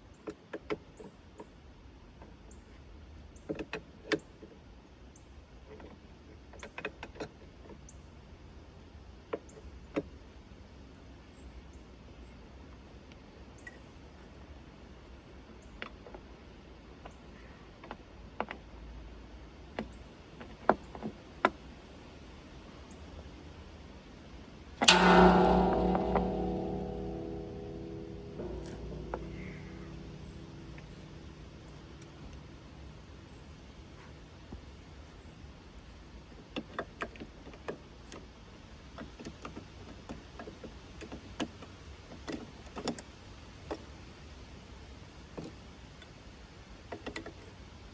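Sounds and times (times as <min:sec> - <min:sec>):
sharp clicks and knocks: 0:24.8 - 0:32.8
faint low hum: 0:24.8 - 0:33.7.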